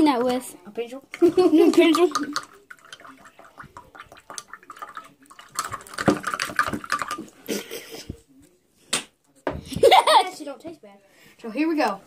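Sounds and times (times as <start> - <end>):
liquid sloshing: 1.2 - 7.4.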